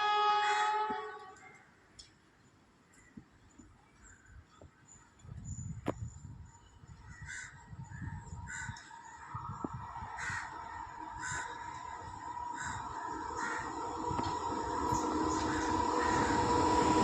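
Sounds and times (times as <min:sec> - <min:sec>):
train hum and rumble: 0:00.0 - 0:03.8, 0:07.8 - 0:17.0
crows cawing: 0:10.2 - 0:13.8, 0:15.5 - 0:16.4.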